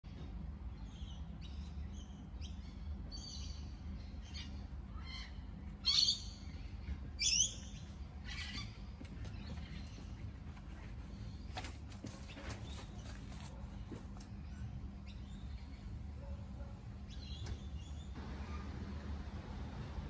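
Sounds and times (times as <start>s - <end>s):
birds chirping and whistling: 0.8s - 10.3s.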